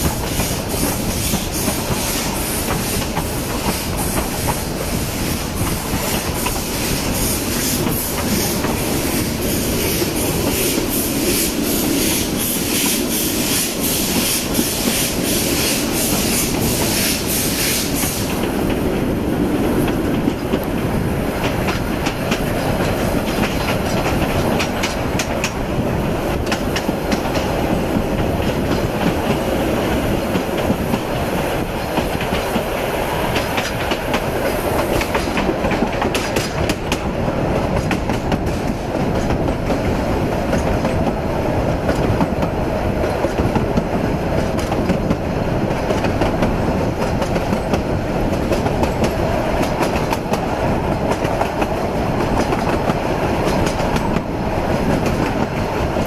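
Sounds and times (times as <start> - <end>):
train carriages rumbling: 0.0 - 56.0
wheels clicking over rail joints: 17.9 - 56.0.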